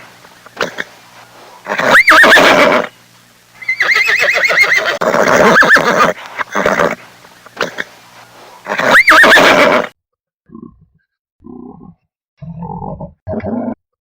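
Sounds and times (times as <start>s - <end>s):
horse whinnying: 1.7s - 2.9s, 3.6s - 7.0s, 8.7s - 9.9s.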